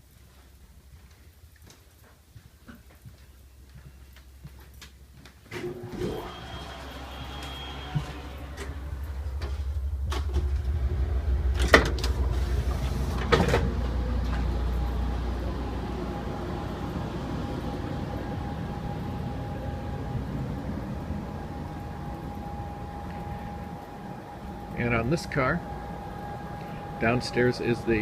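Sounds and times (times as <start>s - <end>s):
loud low gangway rumble: 5.6s - 28.0s
steady hum: 5.6s - 28.0s
sliding train door opening and closing: 11.5s - 14.5s.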